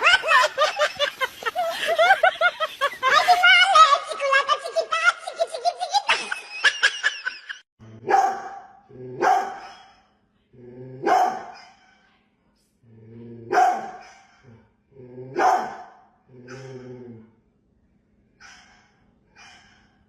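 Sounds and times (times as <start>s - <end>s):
dog barking: 8.0s - 10.1s, 11.0s - 12.0s, 13.5s - 14.4s, 15.4s - 16.8s, 18.4s - 19.9s.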